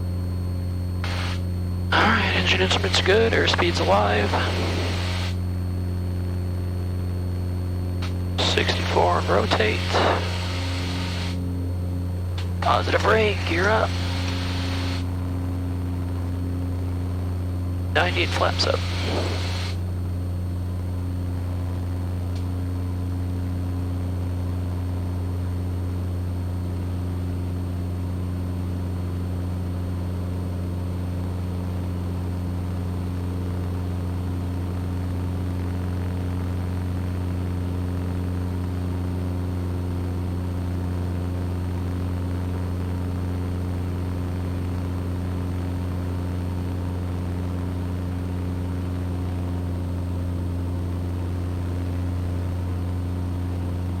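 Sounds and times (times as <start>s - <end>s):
aircraft engine and propeller drone: 0.2s - 28.6s.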